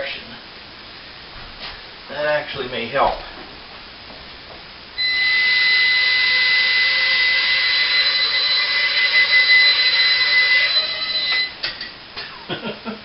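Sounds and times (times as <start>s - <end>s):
quadcopter propellers whining: 5.0s - 11.6s.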